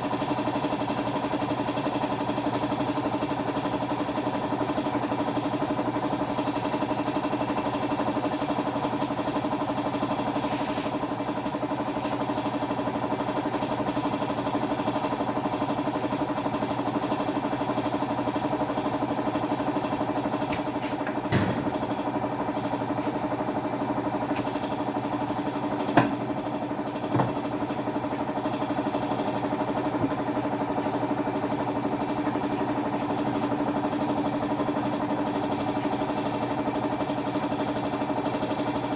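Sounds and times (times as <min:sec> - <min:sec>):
motor running steadily: 0:00.0 - 0:38.9
sharp clicks and knocks: 0:20.5 - 0:21.8, 0:26.0 - 0:26.3.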